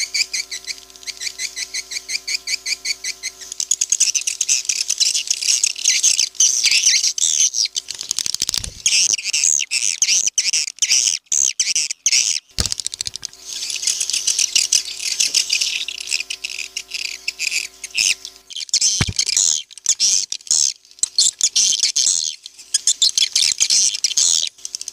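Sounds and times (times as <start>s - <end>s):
rapid dry clicks: 7.8s - 9.0s, 12.6s - 14.4s.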